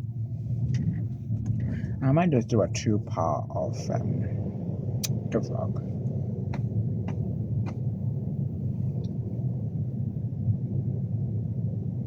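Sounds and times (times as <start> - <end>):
train carriage low rumble: 0.0 - 12.0.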